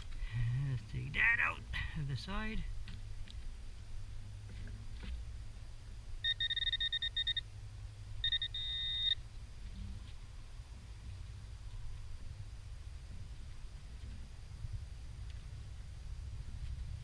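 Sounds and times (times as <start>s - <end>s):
rapid beeps of pinpointer: 6.2s - 7.5s, 8.2s - 9.2s
steady pinpointer tone: 6.2s - 7.6s, 8.2s - 9.2s.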